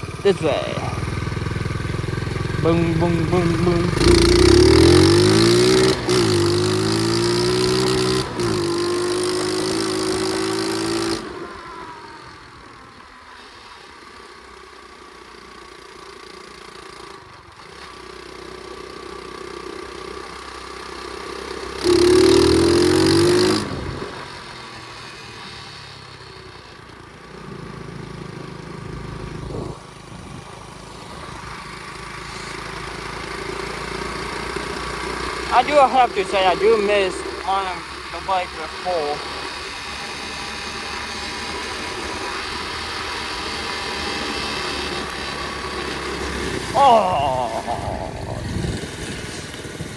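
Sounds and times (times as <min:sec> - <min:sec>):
motorbike engine revving: 0:00.0 - 0:12.0, 0:21.0 - 0:25.4, 0:27.4 - 0:49.9.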